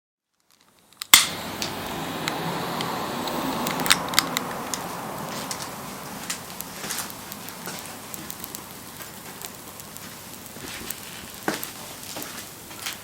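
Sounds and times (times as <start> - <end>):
wood fire crackling and popping: 0.3 - 13.0.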